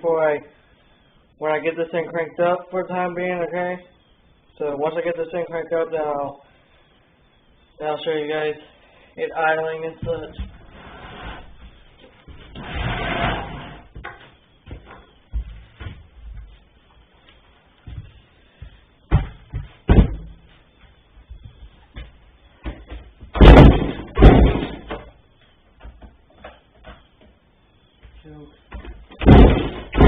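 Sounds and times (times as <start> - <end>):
knocks and handling noises: 13.9 - 27.4.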